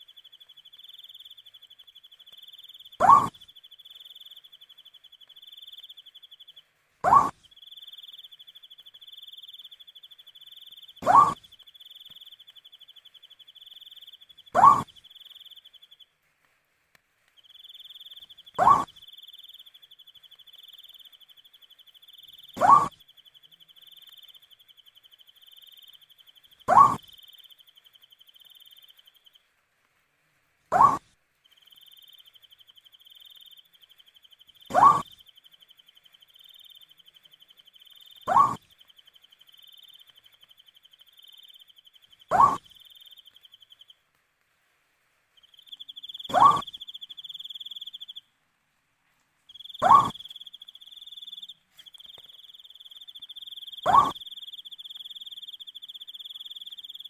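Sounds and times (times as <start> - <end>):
owl calling: 2.4 - 5.9, 7.0 - 8.5, 10.6 - 12.6, 13.8 - 15.6, 17.6 - 19.6, 22.2 - 23.0, 26.6 - 27.4, 30.7 - 31.1, 34.6 - 35.3, 37.9 - 39.0, 41.3 - 43.8, 45.6 - 48.2, 49.6 - 57.0
crickets trilling: 45.4 - 48.2, 49.5 - 57.0.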